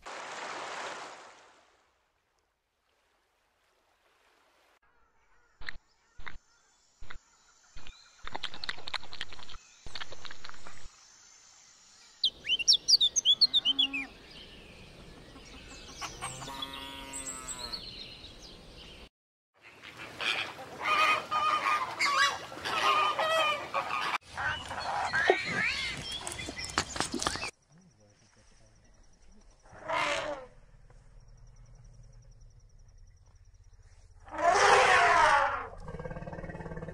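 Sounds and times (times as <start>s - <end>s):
cow mooing: 16.4s - 17.8s
flamingos honking and calling: 19.6s - 25.9s.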